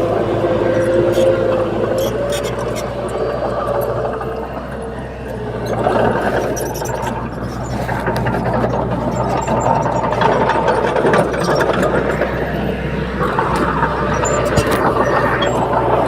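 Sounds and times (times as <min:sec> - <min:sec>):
bulldozer diesel engine running: 0:00.0 - 0:16.0
metallic rattling and clicks: 0:05.6 - 0:16.0.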